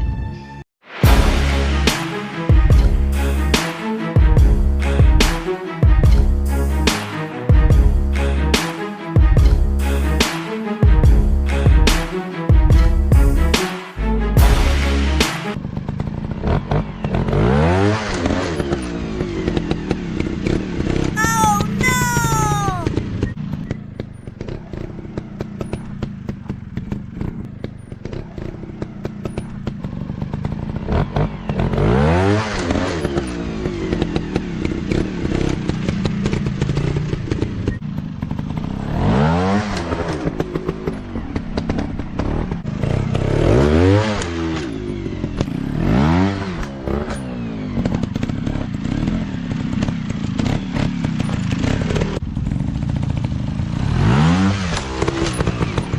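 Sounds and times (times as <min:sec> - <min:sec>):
dirt bike engines revving: 0:24.4 - 0:55.9.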